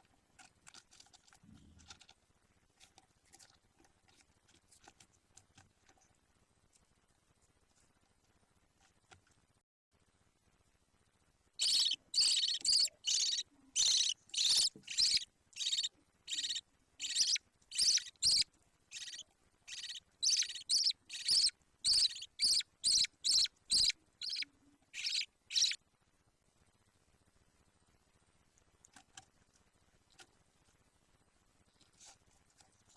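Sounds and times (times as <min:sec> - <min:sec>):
budgerigar chick raspy calls: 0:11.6 - 0:24.4, 0:25.0 - 0:25.8.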